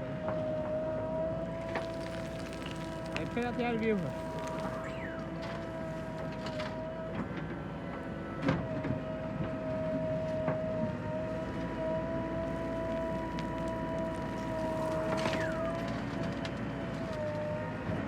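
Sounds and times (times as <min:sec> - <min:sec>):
tractor engine rumbling: 0:00.1 - 0:18.0
high whine: 0:01.6 - 0:06.8.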